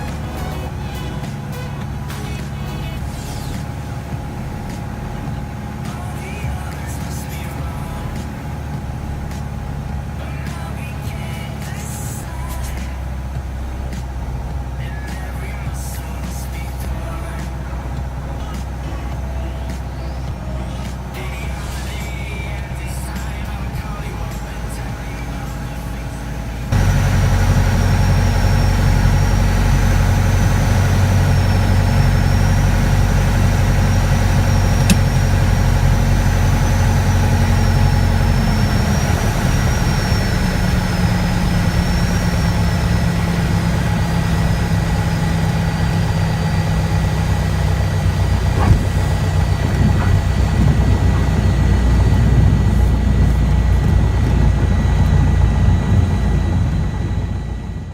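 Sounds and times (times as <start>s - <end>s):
propeller aircraft engine running: 0.0s - 57.9s.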